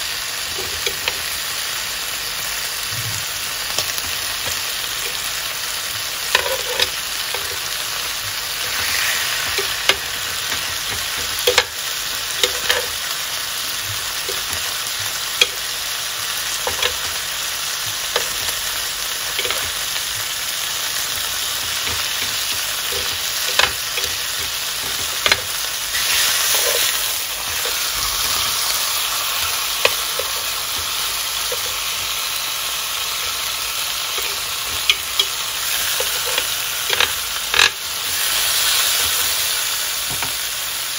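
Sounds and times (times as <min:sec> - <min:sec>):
steak sizzling in grill pan: 0:00.0 - 0:40.9.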